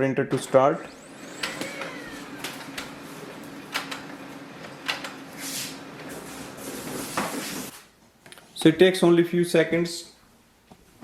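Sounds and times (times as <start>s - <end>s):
printer motor hum: 0.8s - 6.7s.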